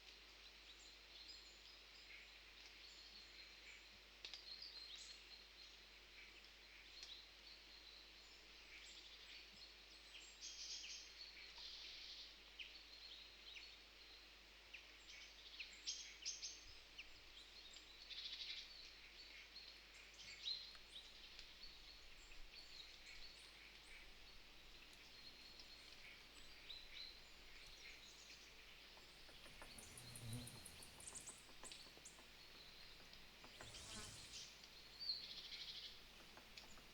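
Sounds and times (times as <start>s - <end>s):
soft outdoor hiss: 14.2s - 36.9s
faint bird chirping: 20.2s - 36.9s.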